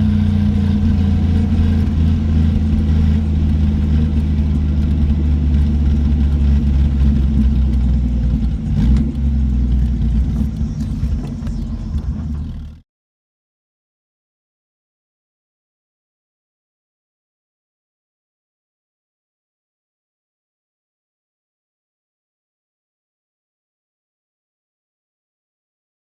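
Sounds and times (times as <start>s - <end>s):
car engine running: 0.0s - 12.8s.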